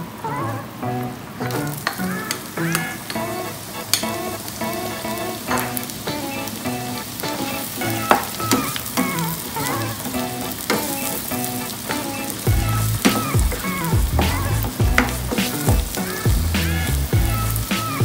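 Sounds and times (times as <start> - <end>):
background music: 0.0 - 18.0
onion sizzling in a frying pan: 1.4 - 18.0
spatula scraping and tapping pan: 7.4 - 9.2, 10.0 - 16.2.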